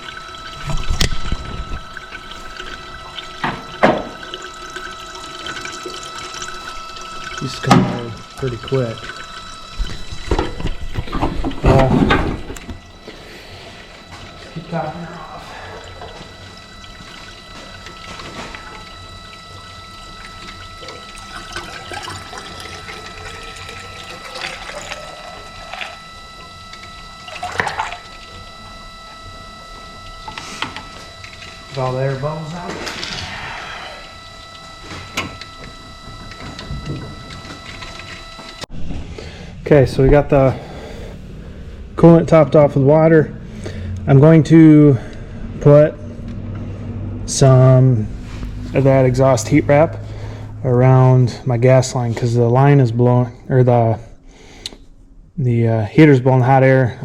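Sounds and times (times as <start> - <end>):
water running and splashing: 0.0 - 33.4
faint steady whine: 0.0 - 57.0.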